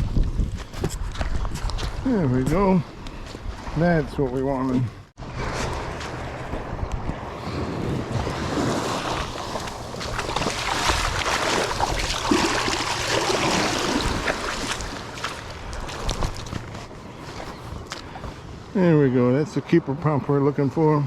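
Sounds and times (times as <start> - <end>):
wind on microphone: 0.0 - 18.6
surf washing on shore: 3.6 - 19.0.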